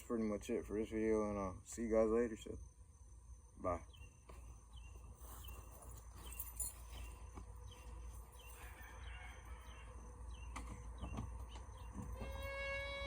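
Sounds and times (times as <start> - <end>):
bird chirping: 3.6 - 12.3.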